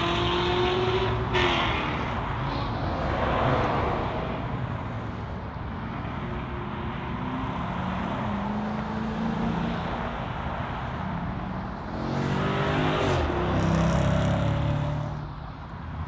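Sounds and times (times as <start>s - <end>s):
car engines rumbling: 0.0s - 16.0s
car passing by: 1.9s - 6.2s.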